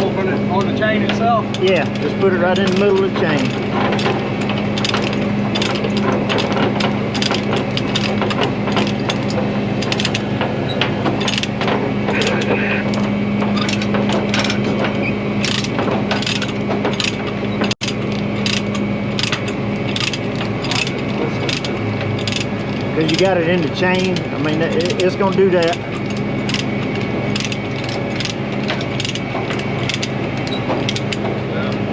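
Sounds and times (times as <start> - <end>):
steady low hum: 0.0 - 31.9
ratchet pawl clicking: 17.8 - 31.8.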